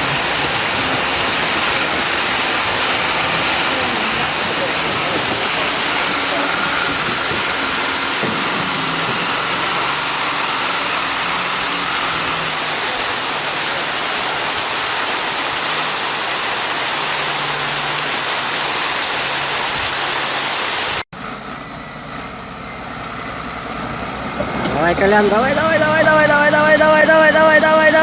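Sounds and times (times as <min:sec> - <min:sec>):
loud steady rushing noise: 0:00.0 - 0:21.0, 0:24.8 - 0:28.0
heavy vehicle engine running: 0:00.0 - 0:28.0.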